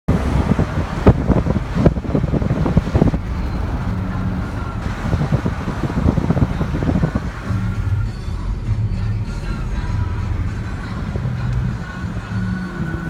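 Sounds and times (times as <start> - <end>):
wind gusting over microphone: 0.1 - 8.7.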